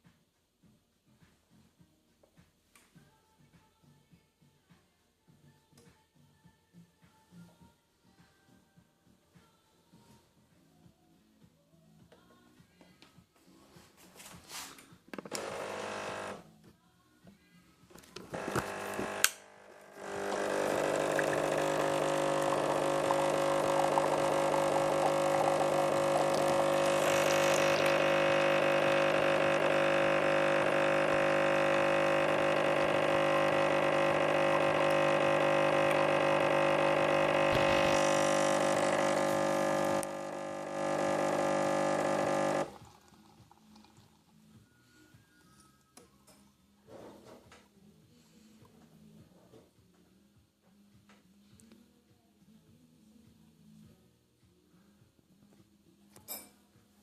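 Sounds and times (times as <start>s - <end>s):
espresso machine pump buzzing: 15.3s - 16.4s, 18.3s - 44.1s.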